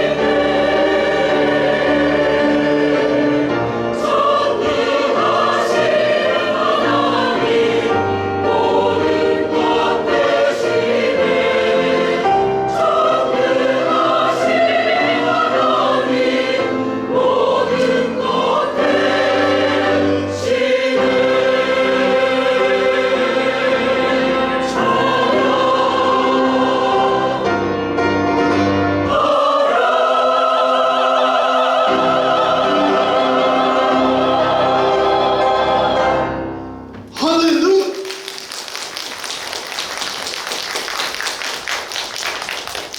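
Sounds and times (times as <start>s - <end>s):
church choir singing: 0.0s - 37.6s.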